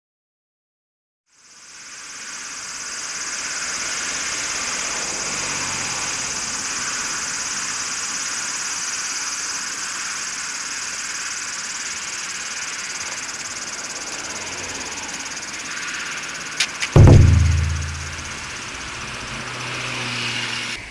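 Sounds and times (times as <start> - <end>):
cicadas chorus: 1.3 - 16.9.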